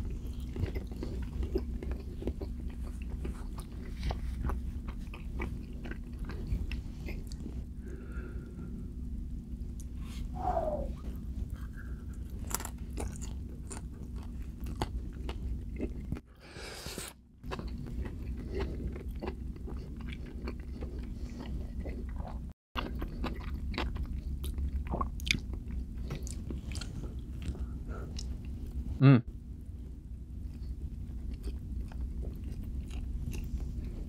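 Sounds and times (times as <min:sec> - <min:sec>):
person chewing with wet clicks: 0:00.0 - 0:07.6, 0:12.1 - 0:16.2, 0:17.4 - 0:28.6, 0:30.4 - 0:34.0
steady low hum: 0:00.0 - 0:34.0.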